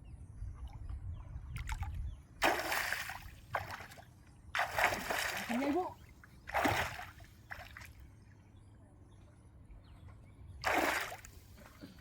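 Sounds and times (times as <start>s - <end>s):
water sloshing: 1.6s - 8.0s, 10.6s - 11.9s
water splashing in river: 2.4s - 4.0s, 4.6s - 8.0s, 10.6s - 11.4s.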